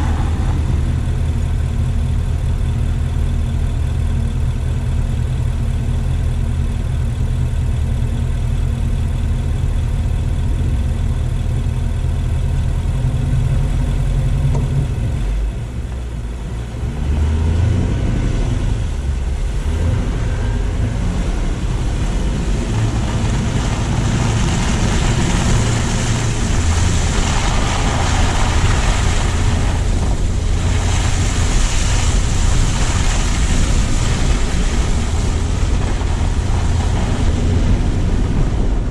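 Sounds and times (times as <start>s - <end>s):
car engine running: 0.0s - 38.9s
tyre hiss on snowy road: 21.9s - 38.0s.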